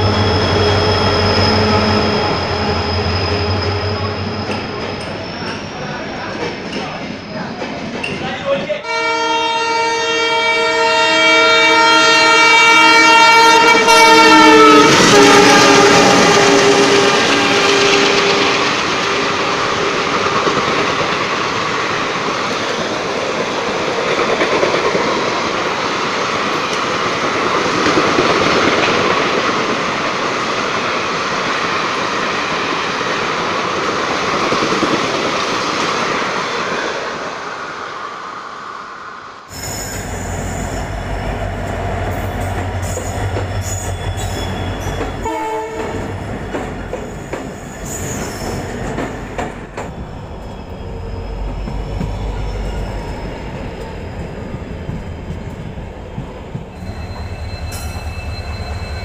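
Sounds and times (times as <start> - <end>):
train wheels rushing on rails: 0.0 - 8.8, 9.7 - 59.0
train horn: 8.8 - 19.6, 42.1 - 46.1
diesel locomotive engine rumble: 40.0 - 59.0.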